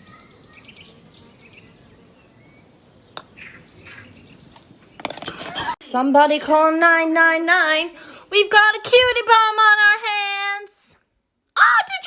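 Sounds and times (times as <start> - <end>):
bird chirps: 0.0 - 5.1.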